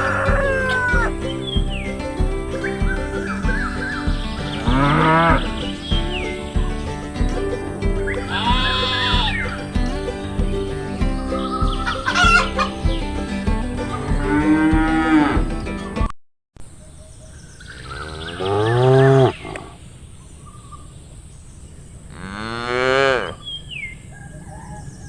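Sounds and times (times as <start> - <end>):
cow mooing: 0.0 - 1.1, 4.7 - 5.4, 18.0 - 19.8, 22.1 - 23.4
background music: 0.0 - 16.1.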